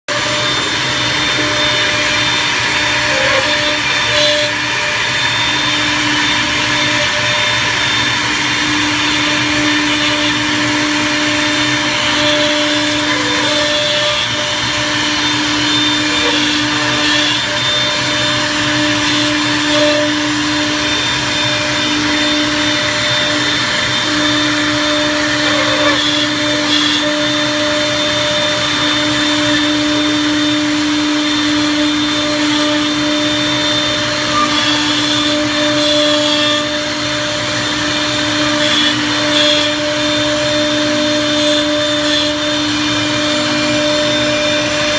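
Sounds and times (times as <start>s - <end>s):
machine motor whining: 0.2s - 44.9s.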